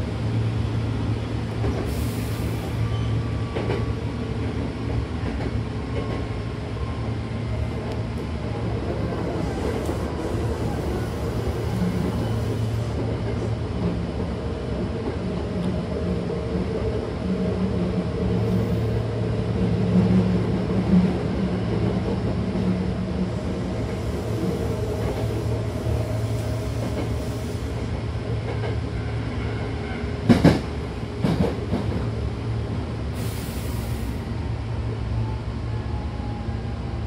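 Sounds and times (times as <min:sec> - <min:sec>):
train carriage rumble: 0:00.0 - 0:37.0
brief hiss: 0:33.2 - 0:34.3.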